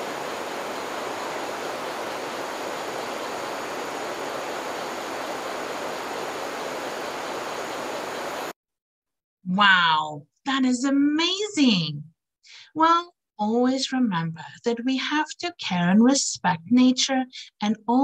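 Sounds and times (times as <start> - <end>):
steady rushing noise: 0.0 - 8.5.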